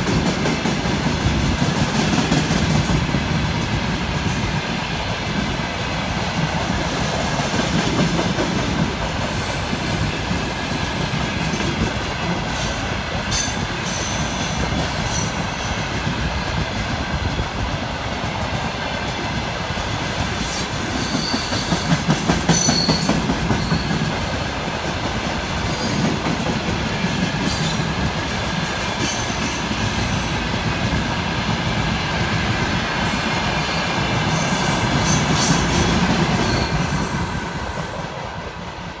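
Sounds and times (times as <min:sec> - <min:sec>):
freight train wheels rumbling on rails: 0:00.0 - 0:39.0
high-pitched wheel squeals: 0:20.5 - 0:24.0.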